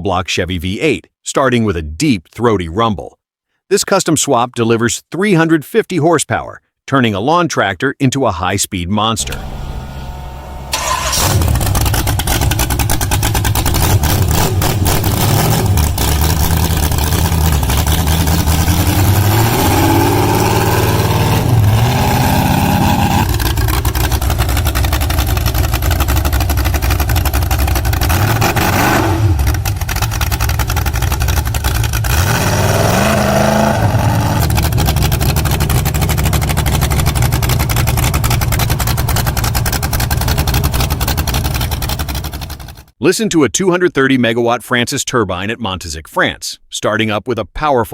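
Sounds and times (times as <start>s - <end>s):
engine revving: 9.2s - 42.9s.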